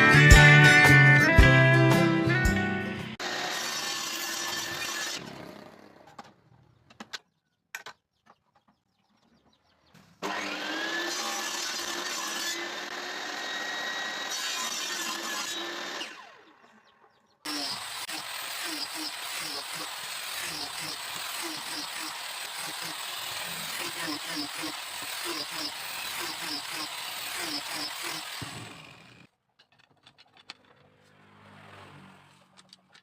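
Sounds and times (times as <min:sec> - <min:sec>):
power saw cutting wood: 0:03.2 - 0:06.4, 0:10.2 - 0:16.8, 0:17.5 - 0:29.3.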